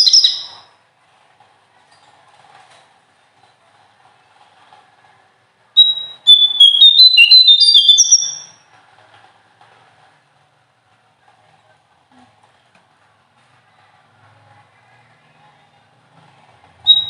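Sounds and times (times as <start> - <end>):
songbird singing: 0.0 - 0.6, 5.8 - 8.6.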